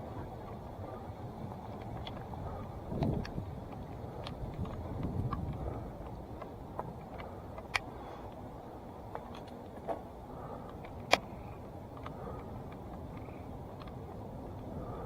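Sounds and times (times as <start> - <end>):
bike tyre rumble on dirt: 0.0 - 8.2
bike clicks and knocks: 0.0 - 15.0.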